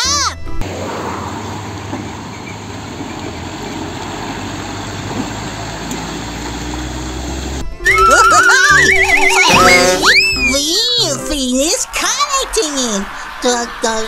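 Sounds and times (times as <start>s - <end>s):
diesel engine running at low revs: 0.6s - 7.9s.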